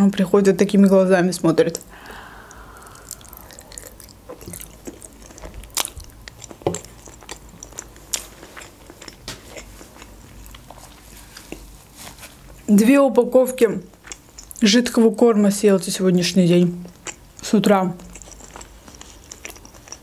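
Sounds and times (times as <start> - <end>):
person chewing food: 1.7 - 12.7, 13.9 - 14.7, 16.7 - 20.0.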